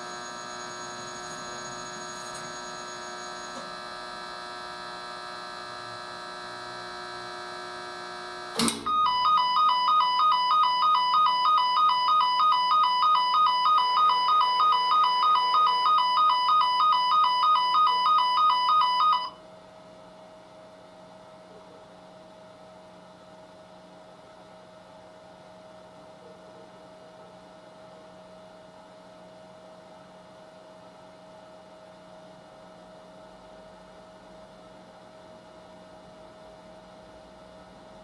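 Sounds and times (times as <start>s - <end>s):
two-tone electronic alarm beeping: 0.0s - 3.6s, 8.8s - 19.4s
washing machine humming: 0.0s - 3.9s, 8.6s - 19.3s.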